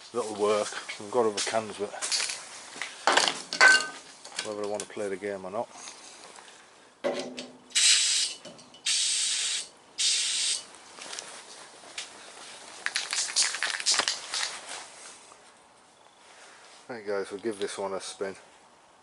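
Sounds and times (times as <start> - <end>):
aerosol can spraying: 7.7 - 10.7.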